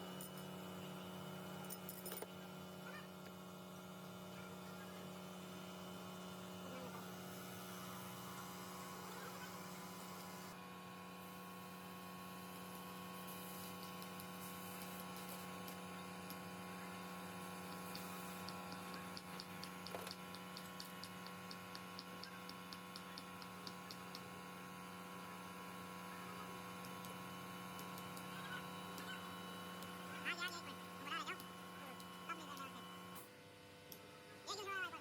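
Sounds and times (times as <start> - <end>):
light evenly spaced ticks: 17.9 - 24.3.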